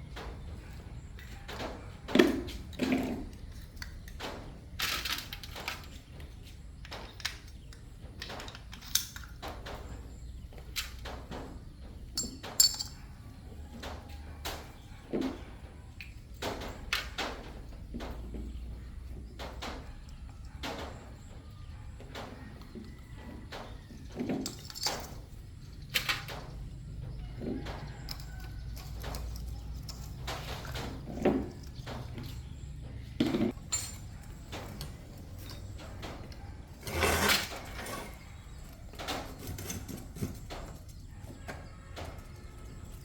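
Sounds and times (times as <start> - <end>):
metal tools knocking and clinking: 10.8 - 13.1, 24.2 - 26.5, 33.2 - 41.0.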